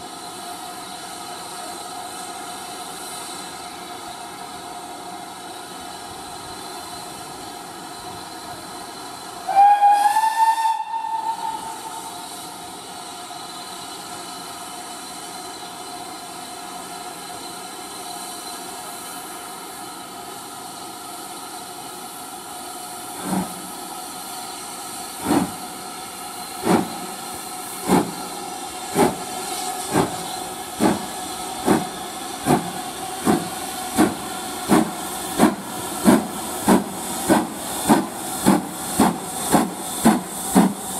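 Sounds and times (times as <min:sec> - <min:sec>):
steam locomotive hissing: 0:00.0 - 0:40.9
steam whistle blast: 0:09.4 - 0:12.6
locomotive exhaust chuffs: 0:22.8 - 0:40.9.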